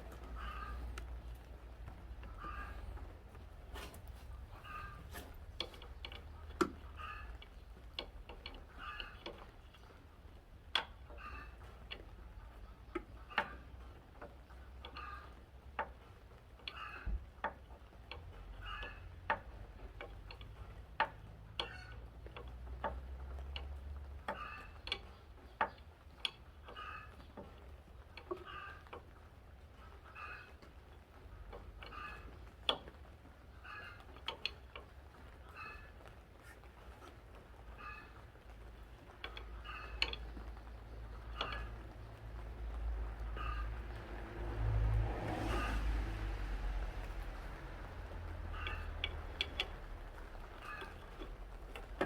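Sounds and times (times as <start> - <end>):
tools and metal parts clicking: 0.0 - 12.2, 30.0 - 43.7, 46.9 - 52.0.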